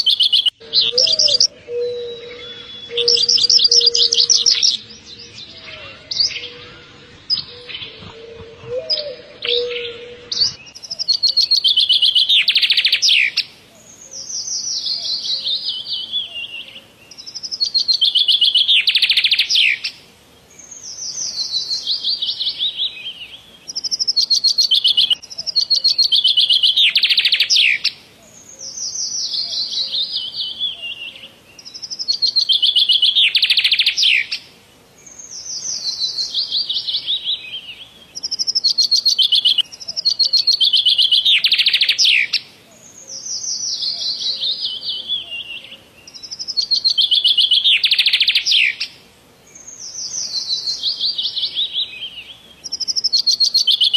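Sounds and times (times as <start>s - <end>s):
bird song in trilled phrases: 0.0s - 20.0s, 20.6s - 34.4s, 35.0s - 53.9s.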